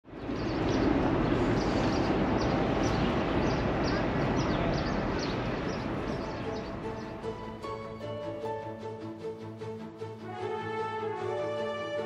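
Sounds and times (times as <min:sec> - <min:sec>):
small birds chirping: 0:00.1 - 0:07.8.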